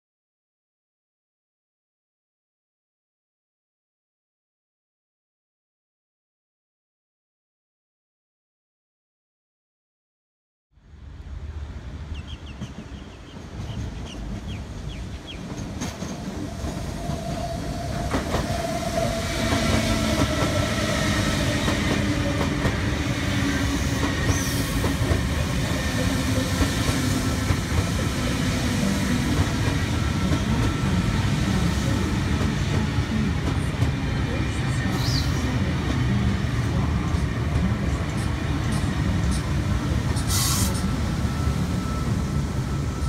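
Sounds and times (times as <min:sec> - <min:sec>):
train wheels rumbling on rail: 0:11.2 - 0:43.0.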